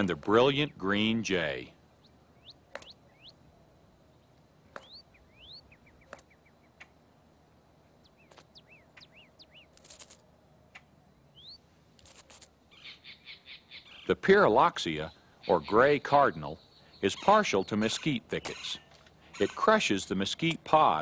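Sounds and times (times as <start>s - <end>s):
harsh rasping bird calls: 0.0s - 3.5s, 4.1s - 7.0s, 8.0s - 21.0s
bird whistled notes and clicks: 2.4s - 3.4s, 4.7s - 6.9s, 8.1s - 10.2s.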